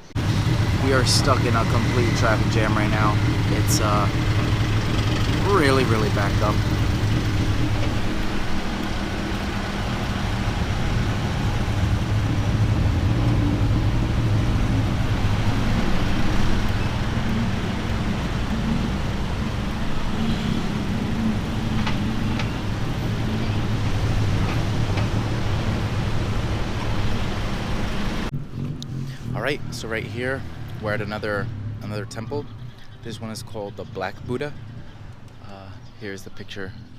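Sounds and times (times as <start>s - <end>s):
car engine idling: 0.0s - 28.4s
street traffic noise: 0.0s - 36.9s.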